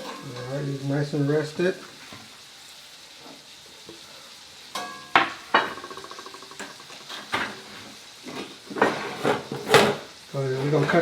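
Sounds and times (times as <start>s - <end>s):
metal utensils clinking: 0.0s - 0.9s, 4.7s - 7.7s
faint hiss: 0.0s - 11.0s.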